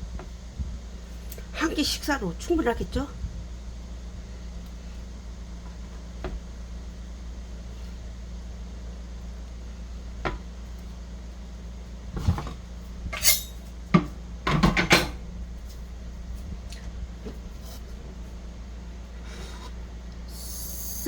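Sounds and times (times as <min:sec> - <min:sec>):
dishes and cutlery clinking: 0:13.2 - 0:15.2.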